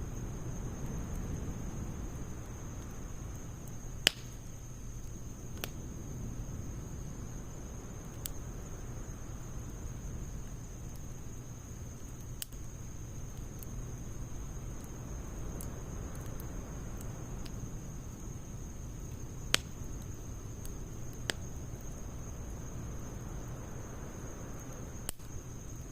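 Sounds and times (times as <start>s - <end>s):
wood fire burning: 0.0s - 25.9s
firewood popping and snapping: 3.6s - 4.6s, 19.0s - 21.4s.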